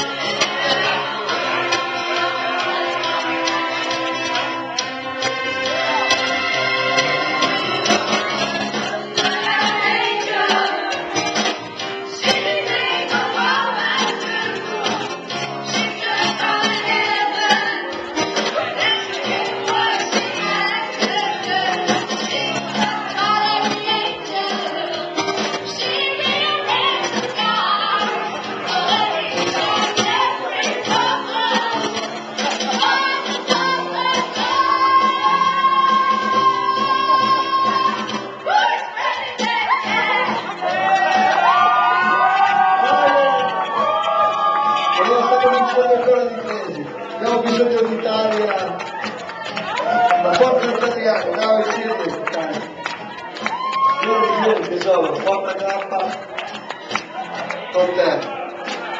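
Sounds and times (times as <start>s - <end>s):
several voices singing: 0.0s - 45.9s
instrumental backing: 0.0s - 58.9s.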